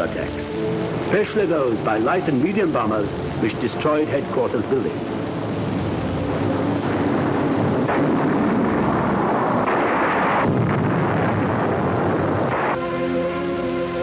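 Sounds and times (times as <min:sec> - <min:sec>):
aircraft noise: 0:00.0 - 0:14.0
bomb explosions: 0:05.2 - 0:12.9.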